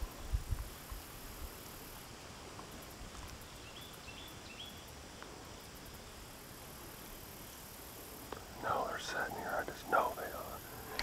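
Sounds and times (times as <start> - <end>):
faint outdoor background: 0.0 - 11.0
small bird chirping: 3.4 - 4.9.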